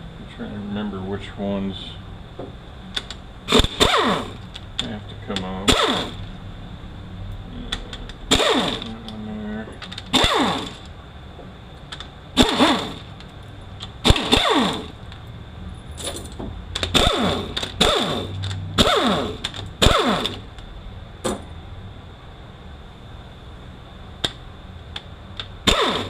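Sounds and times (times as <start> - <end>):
cordless power tool whirring: 3.5 - 4.4, 8.3 - 8.9, 10.1 - 10.9, 12.4 - 13.1, 14.0 - 15.0, 16.9 - 20.4, 25.7 - 26.0.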